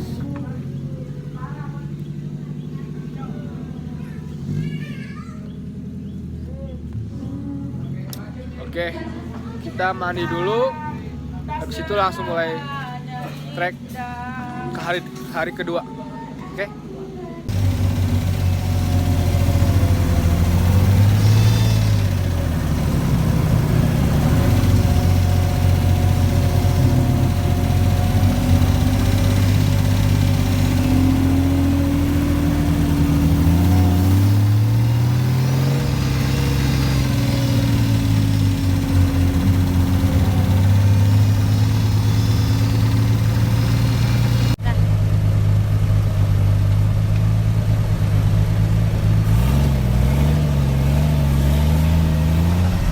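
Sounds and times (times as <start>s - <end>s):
car engine revving: 17.5s - 52.9s.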